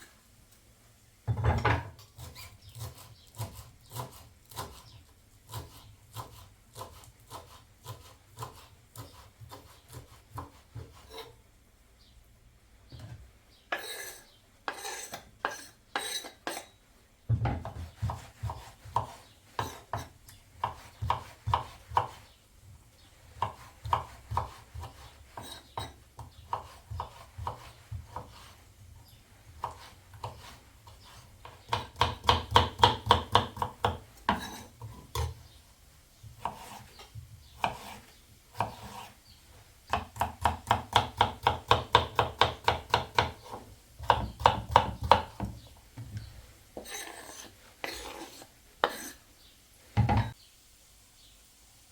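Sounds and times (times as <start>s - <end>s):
knife chopping on cutting board: 1.3s - 4.9s, 5.5s - 11.3s, 17.3s - 22.2s, 23.4s - 28.6s, 29.6s - 35.4s, 36.4s - 38.0s, 38.6s - 39.1s, 39.9s - 45.6s, 46.8s - 49.2s.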